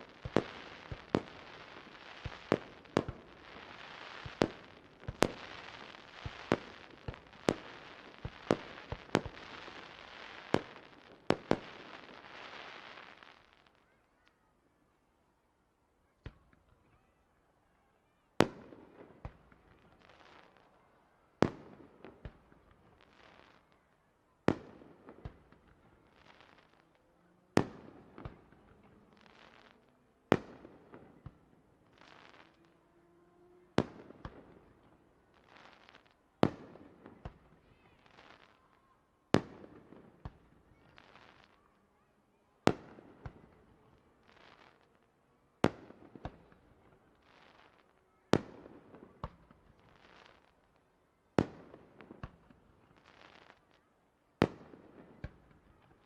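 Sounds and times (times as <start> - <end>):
fireworks bursting with loud bangs: 0.0 - 13.7, 27.6 - 32.7, 33.7 - 41.7, 42.6 - 45.0, 45.6 - 50.7, 51.4 - 53.8, 54.4 - 56.0
fireworks crackling: 0.0 - 13.7, 27.6 - 32.7, 33.8 - 41.7, 42.6 - 45.0.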